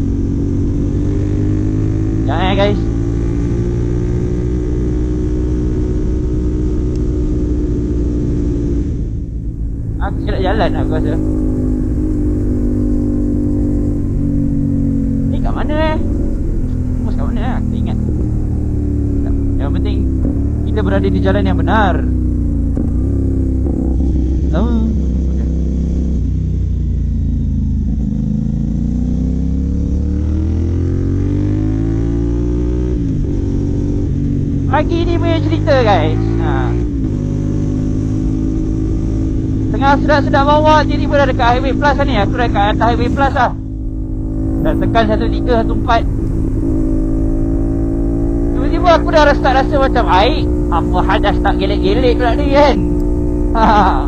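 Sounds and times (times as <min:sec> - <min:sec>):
motorcycle engine cruising: 0:00.0 - 0:54.0
wind rumble: 0:00.0 - 0:54.0
wind rushing: 0:42.8 - 0:48.6.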